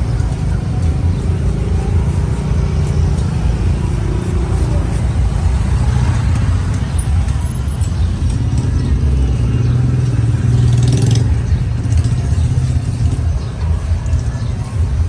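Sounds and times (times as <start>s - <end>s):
low rumble of motor vehicles: 0.0s - 15.0s.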